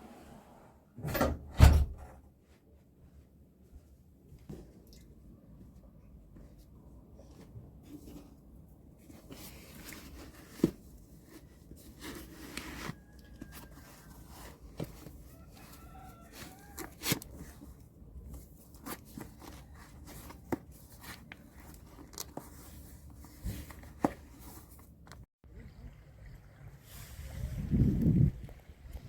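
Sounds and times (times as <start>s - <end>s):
rustling handling noise: 2.4s - 25.3s.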